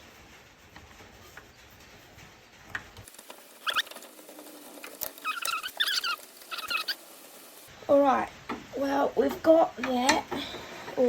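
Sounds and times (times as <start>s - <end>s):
high-pitched metal squeaks: 3.6s - 7.2s.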